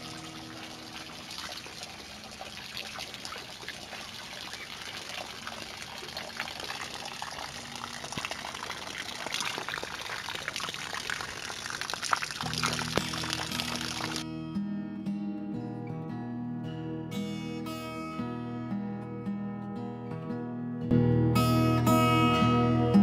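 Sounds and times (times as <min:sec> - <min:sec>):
rain drops ticking: 0:00.0 - 0:14.2
rain hiss: 0:00.0 - 0:14.2.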